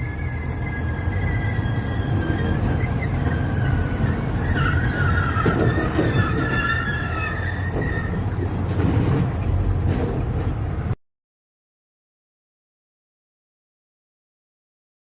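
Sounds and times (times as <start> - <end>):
vehicle driving rumble: 0.0 - 11.0.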